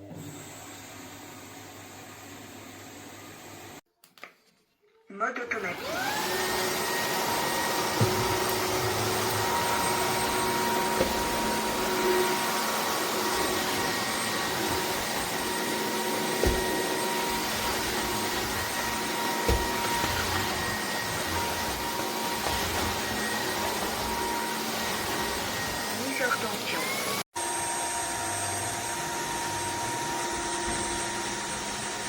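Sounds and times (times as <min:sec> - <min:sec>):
vacuum motor whine: 0:05.5 - 0:32.0
dull knocks on floor: 0:08.0 - 0:08.6, 0:16.4 - 0:16.8, 0:19.4 - 0:20.5.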